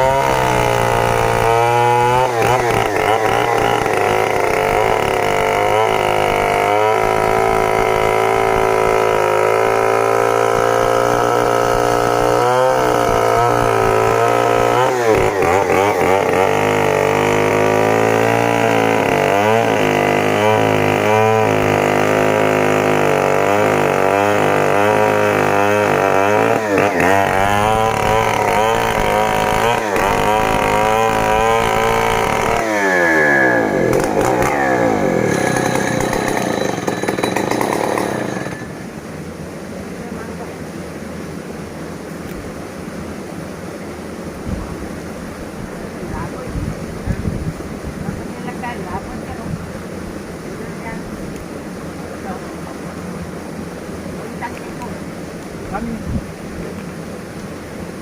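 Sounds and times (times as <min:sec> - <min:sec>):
chainsaw cutting log: 0:00.0 - 0:38.9.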